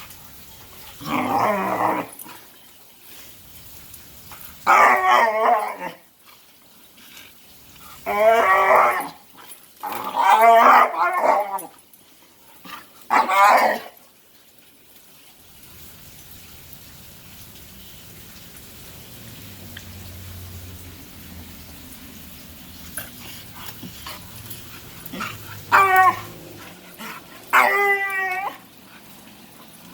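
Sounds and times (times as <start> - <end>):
dog whining and yowling: 1.0 - 2.4, 4.6 - 6.1, 8.0 - 11.8, 12.7 - 14.0, 23.6 - 29.7.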